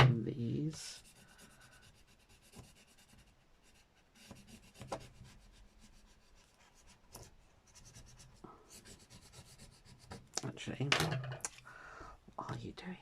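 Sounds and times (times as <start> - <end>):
scratchy rubbing on paper: 0.8 - 10.3.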